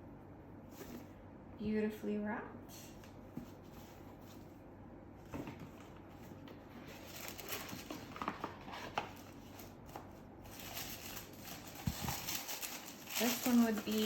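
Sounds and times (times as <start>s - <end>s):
wrapping paper rustling: 5.7s - 14.0s.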